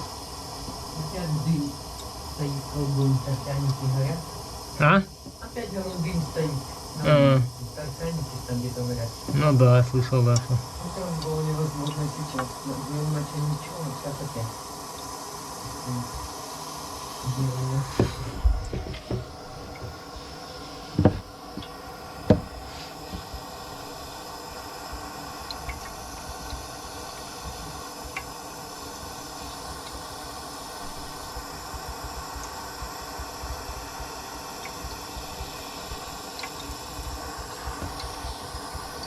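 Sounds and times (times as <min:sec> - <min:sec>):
steady hiss: 0:00.0 - 0:39.0
sharp knocks and clatters: 0:21.0 - 0:21.7, 0:22.3 - 0:22.6.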